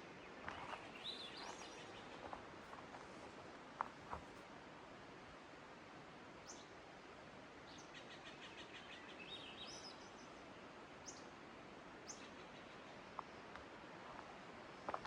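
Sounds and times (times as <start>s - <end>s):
steady background hiss: 0.0s - 15.0s
songbird trilling and chirping: 0.3s - 2.3s.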